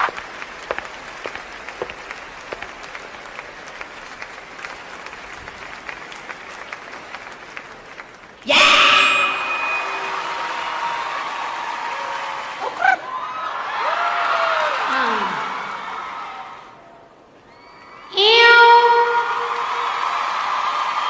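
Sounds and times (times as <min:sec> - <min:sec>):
audience applause: 0:00.0 - 0:16.8, 0:19.4 - 0:21.0
loud held tones: 0:08.5 - 0:11.2.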